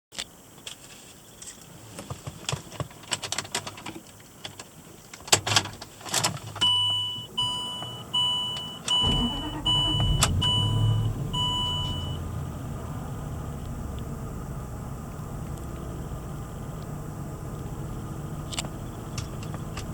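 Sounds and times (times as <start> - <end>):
car engine starting and idling: 6.7 - 19.9.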